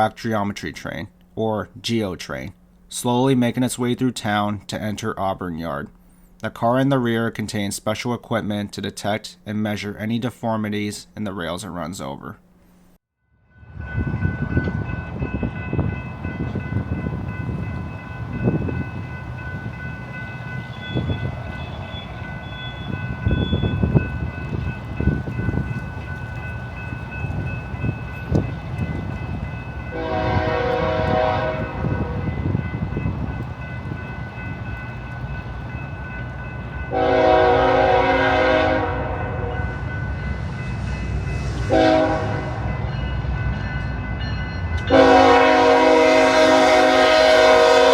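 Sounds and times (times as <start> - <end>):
diesel locomotive engine rumbling: 13.5 - 47.9
locomotive horn blasts: 29.9 - 32.6, 36.9 - 39.8, 41.6 - 42.7, 44.8 - 47.9.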